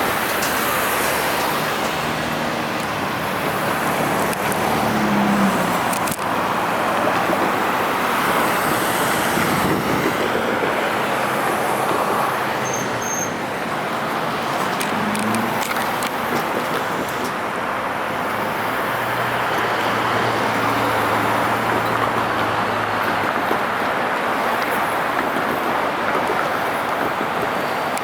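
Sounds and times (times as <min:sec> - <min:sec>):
cars and trucks driving past: 0:00.0 - 0:28.0.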